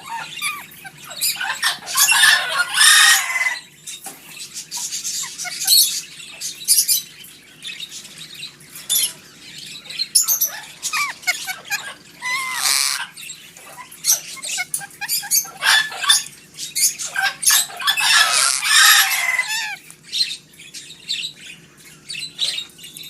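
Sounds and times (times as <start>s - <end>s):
parrots screeching: 0.0s - 3.8s, 4.6s - 7.1s, 8.9s - 20.4s.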